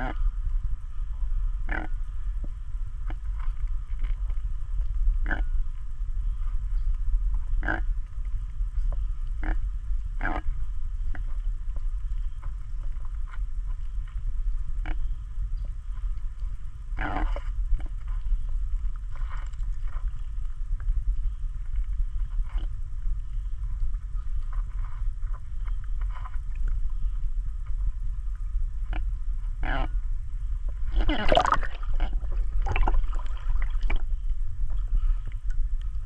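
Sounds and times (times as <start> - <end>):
steady low rumble: 0.0 - 36.0
frogs croaking: 1.6 - 2.2, 5.2 - 5.6, 7.6 - 8.0, 9.4 - 9.6, 10.2 - 11.3, 17.0 - 17.5, 30.9 - 34.1.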